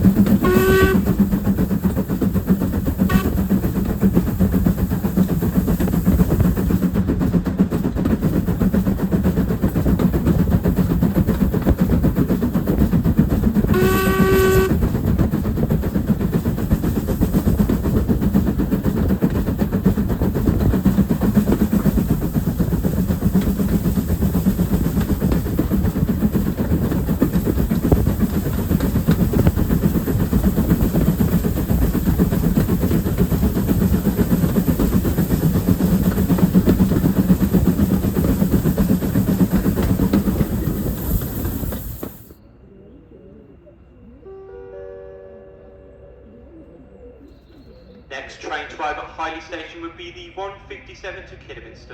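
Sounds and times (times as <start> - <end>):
train rumbling on rails: 0.0 - 51.9
short train whistle: 0.4 - 1.2, 3.1 - 3.4, 13.7 - 14.8, 44.2 - 46.2.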